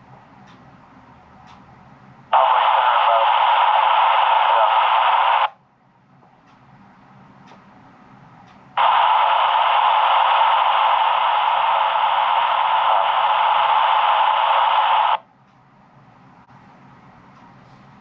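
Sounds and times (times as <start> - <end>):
radio static hiss: 2.3 - 5.6, 8.8 - 15.2.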